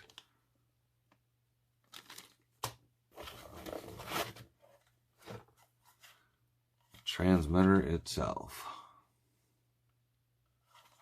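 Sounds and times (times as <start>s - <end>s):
packaging rustling: 1.8s - 5.4s.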